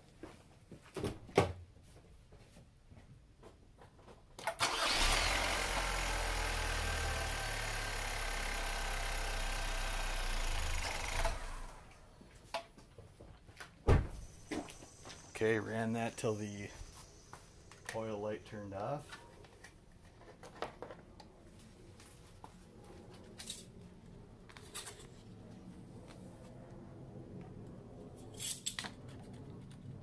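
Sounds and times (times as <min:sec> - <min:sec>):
car engine starting and idling: 0:04.4 - 0:12.1.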